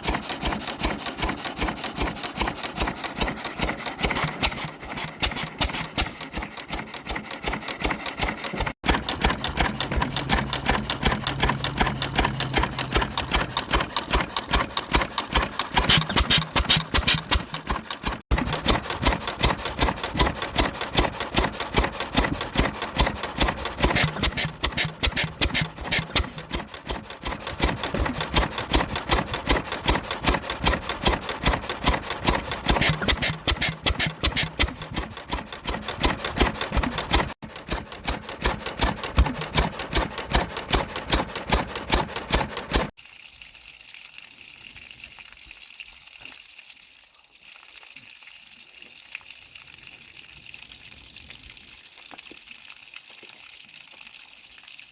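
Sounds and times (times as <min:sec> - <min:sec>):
stationary engine clattering: 0:00.0 - 0:42.9.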